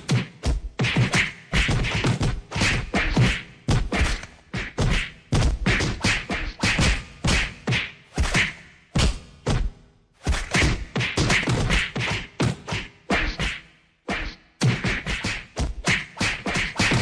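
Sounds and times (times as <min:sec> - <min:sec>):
punch impacts: 0:00.8 - 0:12.8
swish: 0:00.9 - 0:08.6, 0:10.2 - 0:12.1.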